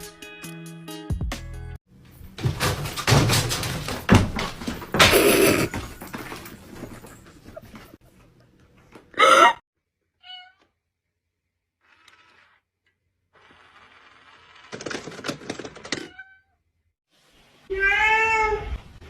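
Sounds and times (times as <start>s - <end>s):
rustling and scuffling: 1.9s - 9.1s
cat meowing: 17.7s - 18.7s.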